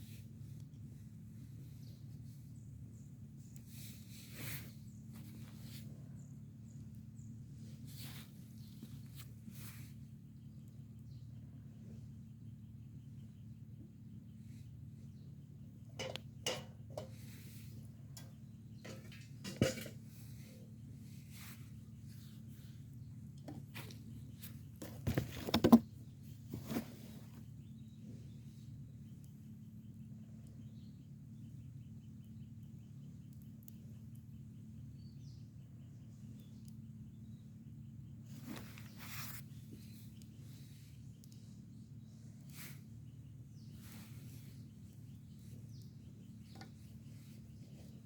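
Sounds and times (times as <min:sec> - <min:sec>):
steady low hum: 0:00.0 - 0:48.0
bird chirps: 0:20.2 - 0:48.0
faint clicks: 0:32.2 - 0:34.3, 0:40.0 - 0:41.5.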